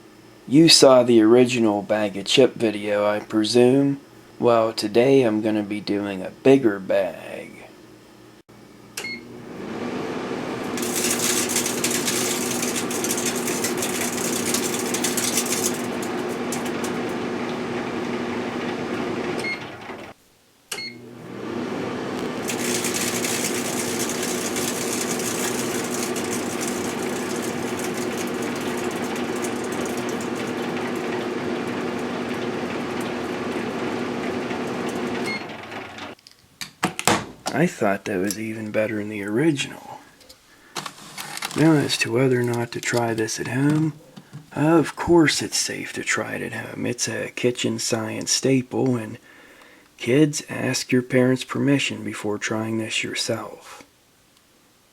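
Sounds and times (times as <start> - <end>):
microwave oven humming: 0.0 - 36.2
chip bag crackling and crinkling: 10.8 - 17.2, 22.4 - 33.4.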